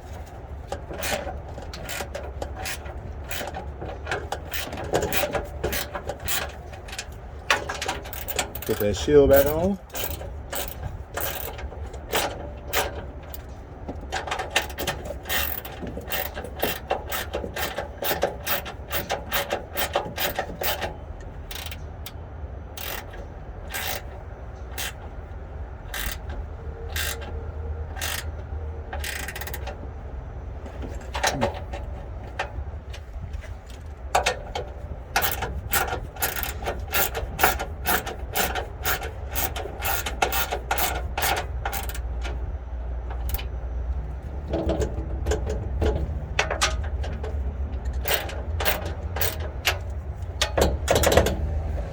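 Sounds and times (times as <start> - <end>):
hand ratchet clicking: 0.7 - 13.5, 14.1 - 22.2, 22.8 - 25.1, 25.9 - 27.3, 27.9 - 28.4, 29.0 - 29.8, 35.2 - 42.4, 43.1 - 43.5, 45.4 - 51.4.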